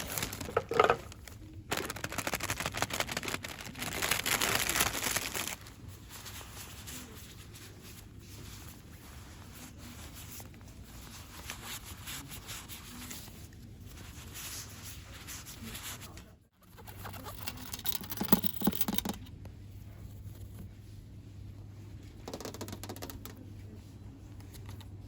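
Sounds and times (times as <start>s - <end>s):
rustling packaging: 0.0s - 7.8s.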